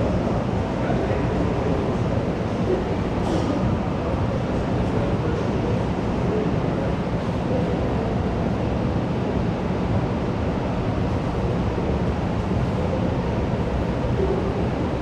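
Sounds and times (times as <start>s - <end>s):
crowd of indistinct voices: 0.0s - 15.0s.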